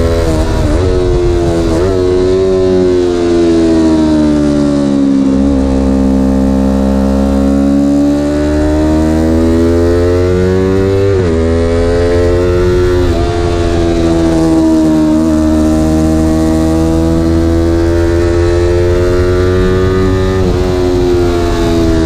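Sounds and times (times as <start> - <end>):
vehicle engine revving: 0.0 - 22.0.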